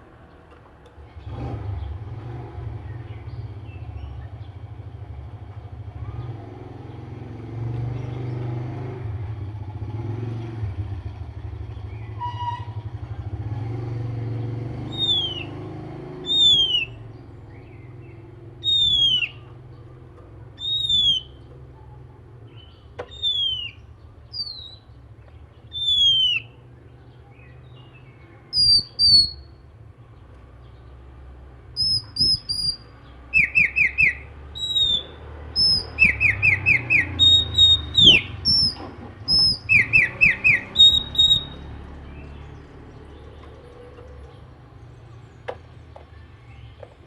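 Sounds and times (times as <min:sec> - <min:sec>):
vehicle engine rumbling: 0:00.0 - 0:47.0
bird whistling: 0:14.9 - 0:15.6, 0:16.2 - 0:17.8, 0:18.6 - 0:19.5, 0:20.6 - 0:21.4, 0:22.6 - 0:24.9, 0:25.7 - 0:26.6, 0:28.5 - 0:29.5, 0:31.8 - 0:41.7.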